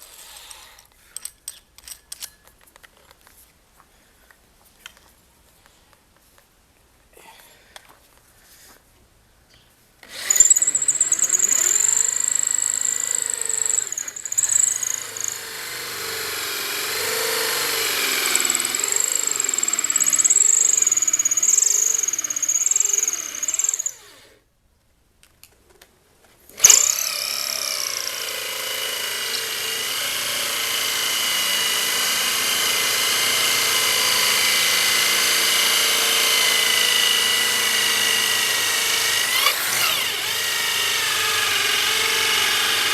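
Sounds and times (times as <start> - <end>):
electric power tool cutting wood: 10.1 - 24.3, 26.6 - 42.9.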